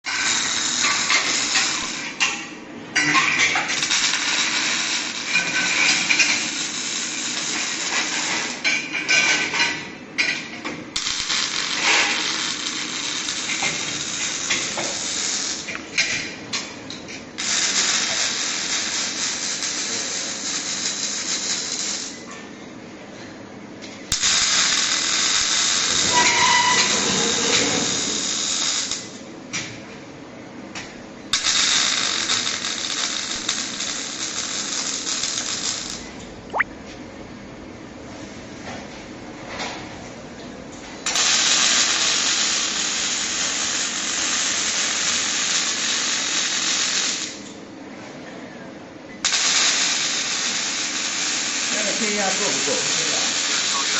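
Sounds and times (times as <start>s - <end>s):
welding arc hissing and crackling: 0.1s - 2.3s, 3.5s - 9.5s, 11.0s - 15.8s, 17.4s - 22.2s, 24.1s - 29.2s, 31.3s - 36.0s, 41.1s - 47.5s, 49.2s - 53.9s.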